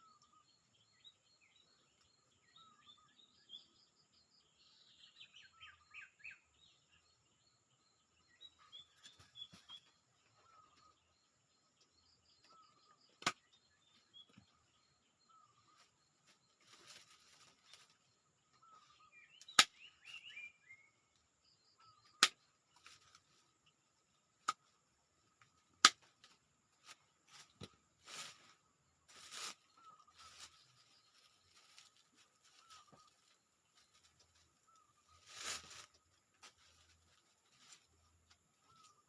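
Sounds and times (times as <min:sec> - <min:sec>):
bird chirping: 0:00.0 - 0:39.0
faint birdsong: 0:00.0 - 0:39.0
rustling: 0:26.2 - 0:39.0.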